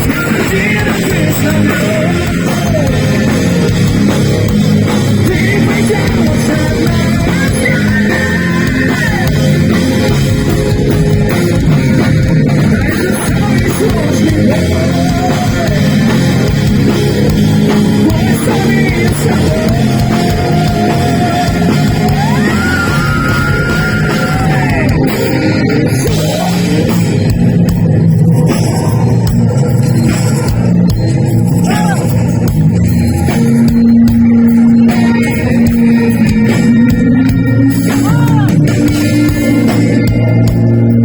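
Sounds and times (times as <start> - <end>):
heavy metal band playing: 0.0 - 41.0
sliding lead guitar line: 0.0 - 41.0.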